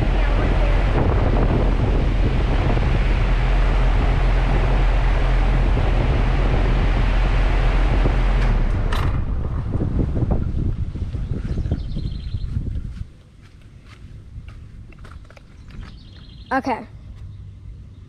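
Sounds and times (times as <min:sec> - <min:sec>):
air conditioner unit humming: 0:00.0 - 0:12.6
fan rushing: 0:00.0 - 0:13.1.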